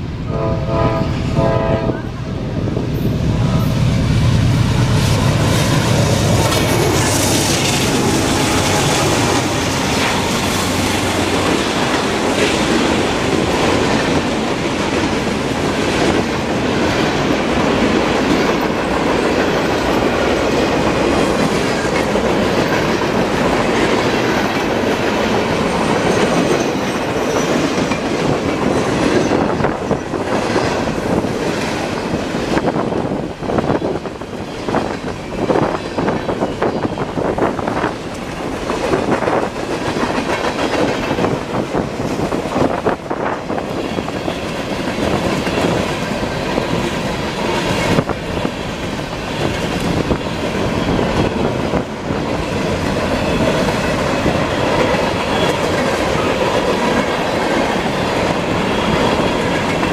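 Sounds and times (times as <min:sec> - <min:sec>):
diesel locomotives rumbling past: 0:00.0 - 0:59.9
train wheels clickety-clack on rails: 0:00.0 - 0:59.9
train horn: 0:00.2 - 0:02.4.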